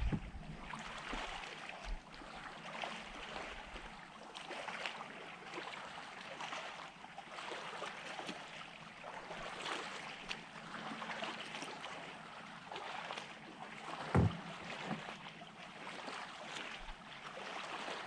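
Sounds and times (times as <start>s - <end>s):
water lapping and splashing: 0.0s - 18.0s.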